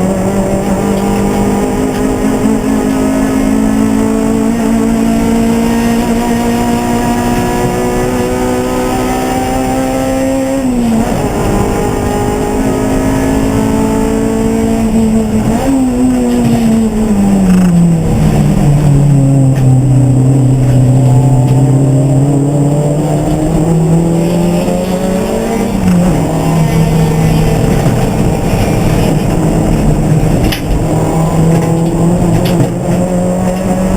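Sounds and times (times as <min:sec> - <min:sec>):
race car engine revving: 0:00.0 - 0:33.9.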